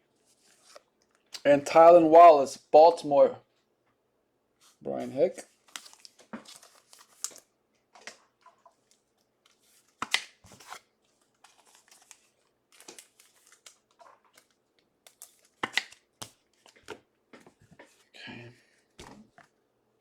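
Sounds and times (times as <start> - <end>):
cards and plastic rustling: 4.6 - 18.1.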